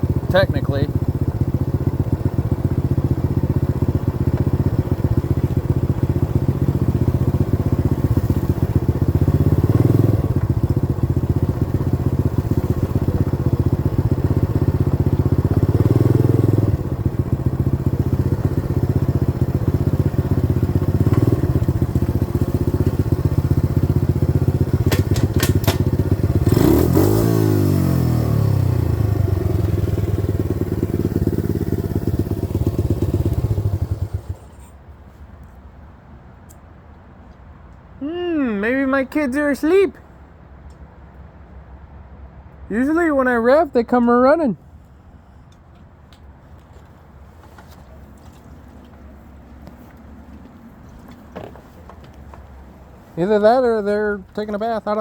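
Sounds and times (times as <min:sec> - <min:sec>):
dirt bike engine running: 0:00.0 - 0:34.6.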